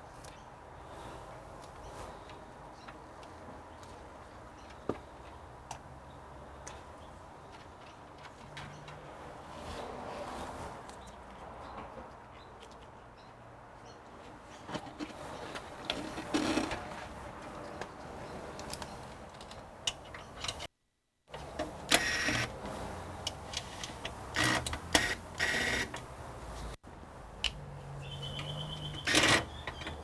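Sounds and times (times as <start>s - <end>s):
scraping and rustling: 14.2s - 20.7s.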